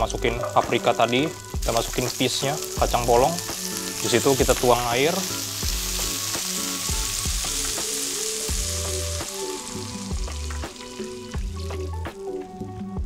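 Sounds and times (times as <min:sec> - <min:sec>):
vegetables sizzling in oil: 0:00.0 - 0:12.7
water pouring into pan: 0:00.4 - 0:12.7.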